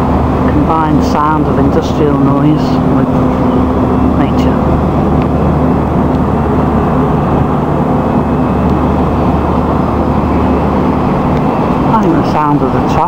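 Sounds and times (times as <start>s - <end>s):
motorway traffic swishing: 0.0s - 13.0s.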